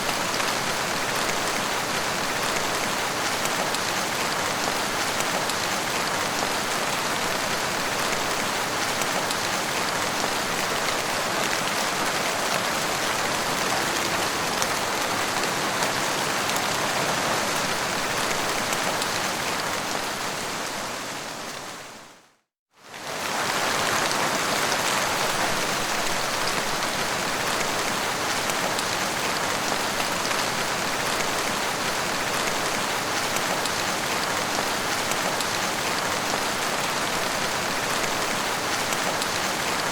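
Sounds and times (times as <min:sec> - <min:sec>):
rain pattering on surfaces: 0:00.0 - 0:20.6, 0:22.9 - 0:39.9.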